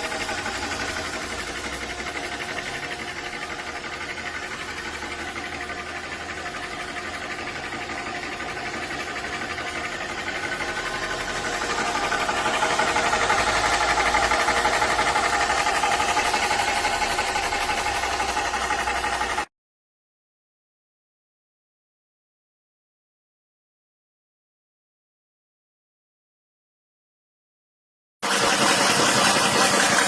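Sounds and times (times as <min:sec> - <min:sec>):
air compressor pulsing hum: 0:00.0 - 0:19.5, 0:28.2 - 0:30.0.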